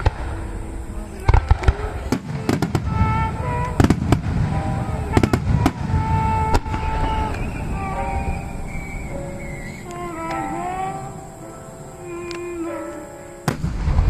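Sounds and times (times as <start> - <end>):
low rumble of fireworks shells: 0.0 - 11.1, 13.4 - 14.0
fireworks bursting: 0.0 - 14.0
music: 0.0 - 14.0.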